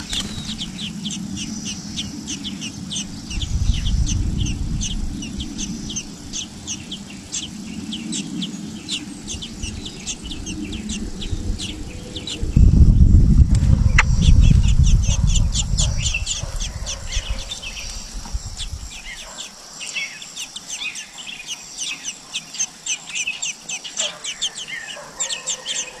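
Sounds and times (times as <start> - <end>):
small birds chirping: 0.0 - 26.0
low rumble: 2.8 - 7.1, 9.2 - 19.1.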